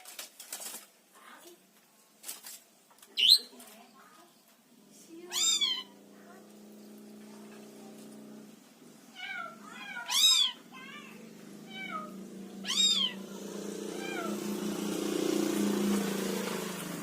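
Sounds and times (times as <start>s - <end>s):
bird mewing like a kitten: 5.3s - 6.0s, 9.4s - 13.2s.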